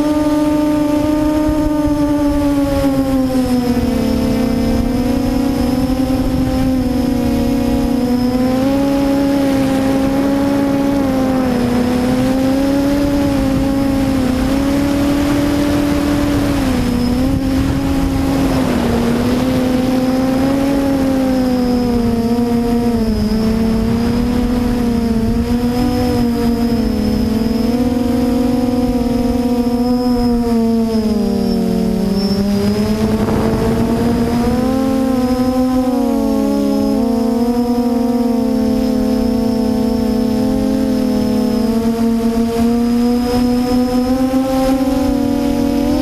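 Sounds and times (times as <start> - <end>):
quadcopter motors buzzing: 0.0 - 46.0
low rumble: 32.5 - 36.0.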